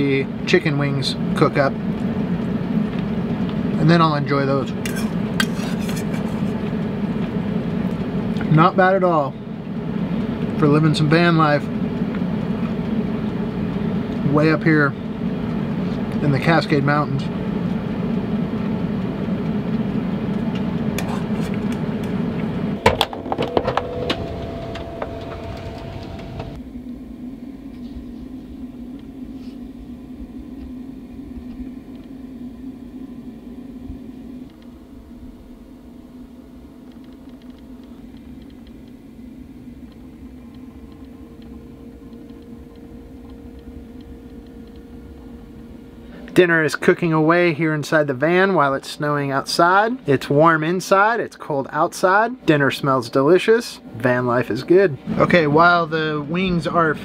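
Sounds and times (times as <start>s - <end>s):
air fryer fan humming: 0.0s - 57.0s
high steady tone: 16.8s - 35.0s, 39.0s - 49.4s.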